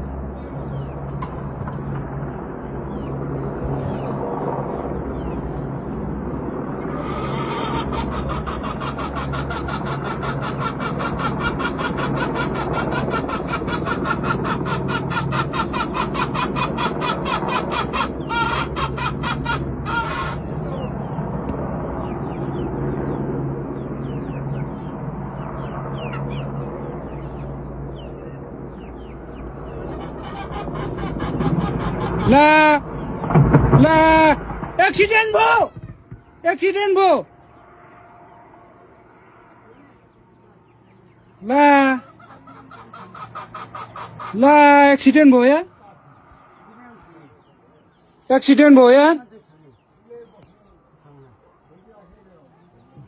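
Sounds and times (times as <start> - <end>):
helicopter rotor blades chopping: 0.0 - 37.3
low hum: 0.0 - 41.5.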